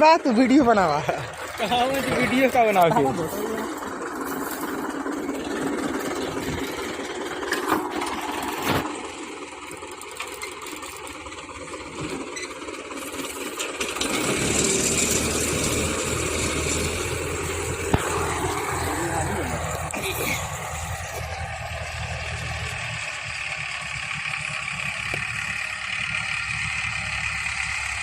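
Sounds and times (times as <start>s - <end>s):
tractor engine running: 0.0s - 28.0s
deep low rumble: 15.9s - 23.2s.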